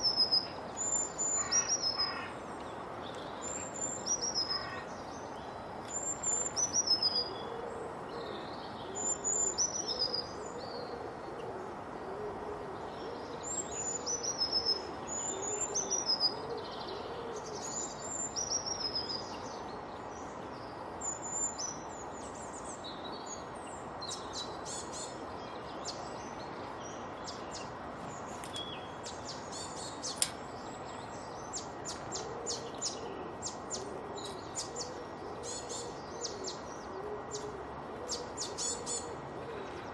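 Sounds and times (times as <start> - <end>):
background hiss: 0.0 - 39.9
low hooting or cooing: 7.0 - 18.0, 31.9 - 39.9.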